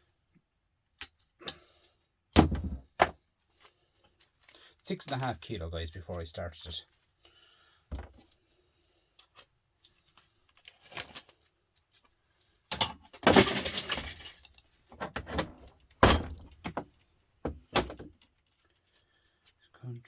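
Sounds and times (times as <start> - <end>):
scrap metal clattering rattle: 12.8 - 16.5.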